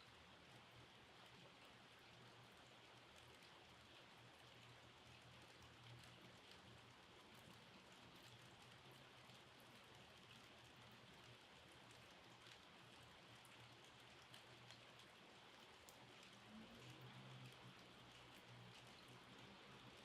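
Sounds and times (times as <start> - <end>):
faint rainfall: 0.0 - 20.0
raindrops ticking: 2.2 - 20.0.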